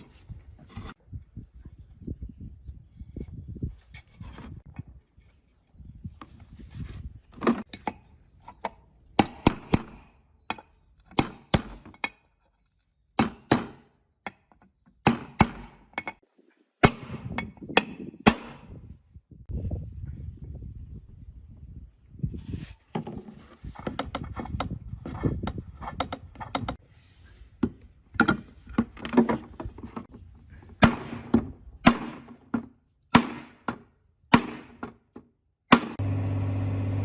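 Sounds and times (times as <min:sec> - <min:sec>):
rustling and scraping: 0:00.0 - 0:02.1, 0:03.0 - 0:07.7, 0:22.2 - 0:30.8.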